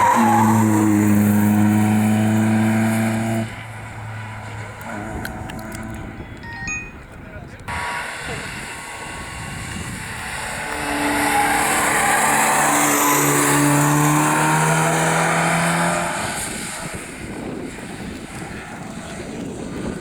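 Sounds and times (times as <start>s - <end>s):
rally car passing at high revs: 0.0s - 6.3s, 7.7s - 20.0s.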